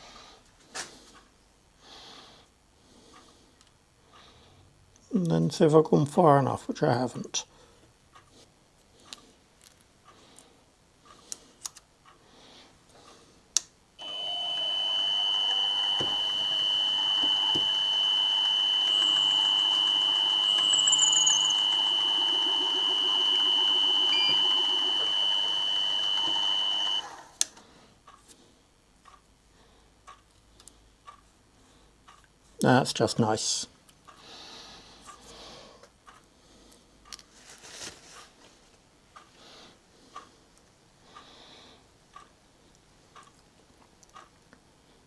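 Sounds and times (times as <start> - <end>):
machine tool high whine: 14.0 - 27.3.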